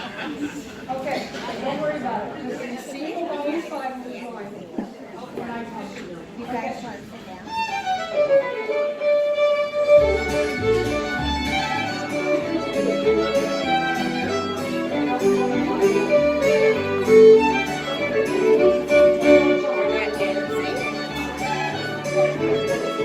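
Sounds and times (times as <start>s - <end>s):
fiddle folk dance tune: 7.5s - 23.0s.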